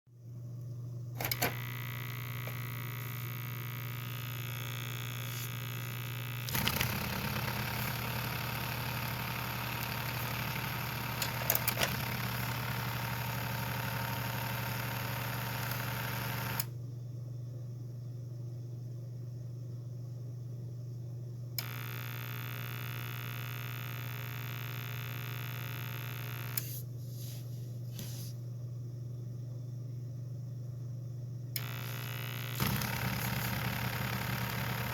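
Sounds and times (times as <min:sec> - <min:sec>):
drain pump motor humming: 0:01.2 - 0:16.7, 0:31.6 - 0:34.9.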